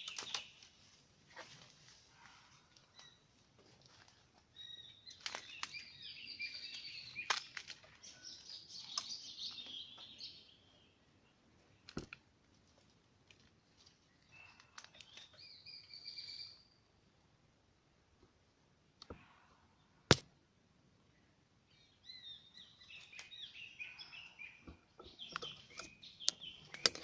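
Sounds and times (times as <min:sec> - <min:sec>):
birds chirping and chattering: 0:00.0 - 0:00.9, 0:04.4 - 0:12.2, 0:13.6 - 0:16.8, 0:21.1 - 0:27.0.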